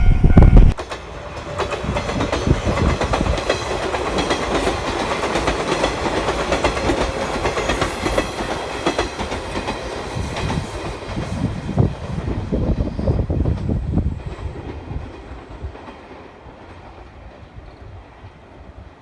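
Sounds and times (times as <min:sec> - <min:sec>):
train wheels clattering over joints: 0:00.8 - 0:11.7.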